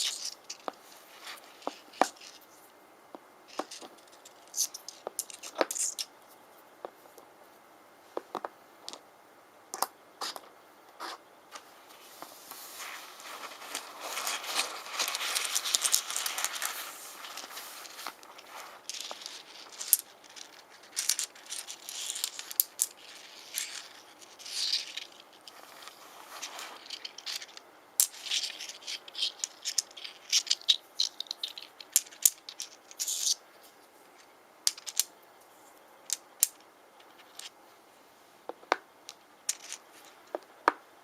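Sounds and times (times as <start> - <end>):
stones clicking together: 3.5 - 6.1, 13.7 - 33.4, 34.7 - 35.1, 36.0 - 37.6, 38.5 - 40.8.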